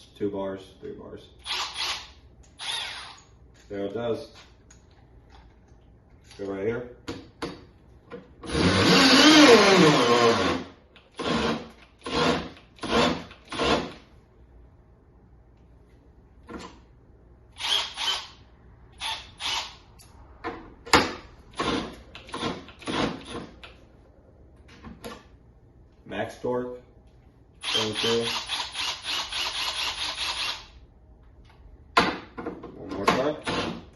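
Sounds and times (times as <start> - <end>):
cordless drill running: 1.4 - 3.2, 8.5 - 14.0, 17.6 - 18.4, 19.0 - 19.8, 27.6 - 30.7.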